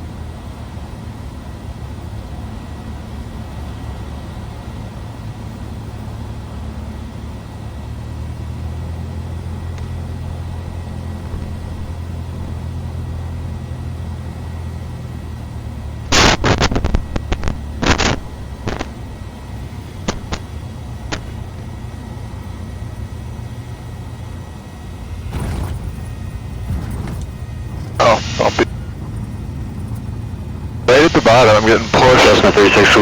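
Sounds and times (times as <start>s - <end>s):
airplane engine droning: 0.0s - 33.0s
short loud noise bursts: 16.1s - 18.9s.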